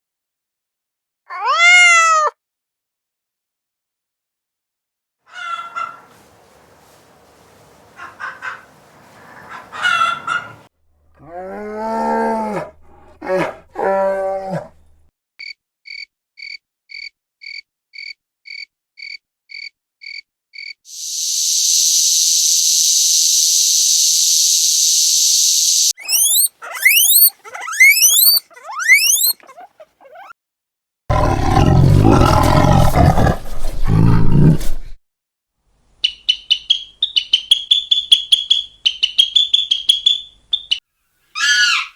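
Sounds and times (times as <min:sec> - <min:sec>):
insect-like buzz: 0:20.9 - 0:29.3
rapid even chirping: 0:20.9 - 0:29.4
quick rising whistled notes: 0:21.0 - 0:29.4
wavering animal calls: 0:25.9 - 0:30.4.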